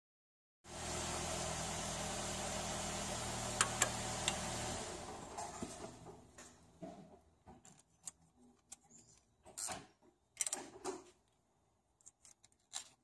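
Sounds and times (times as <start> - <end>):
car engine idling: 0.7 - 6.1.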